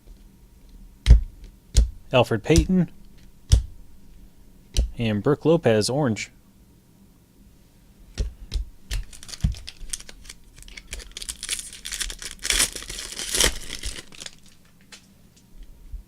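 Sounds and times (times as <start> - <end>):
card pack wrapper tearing: 9.0 - 14.7.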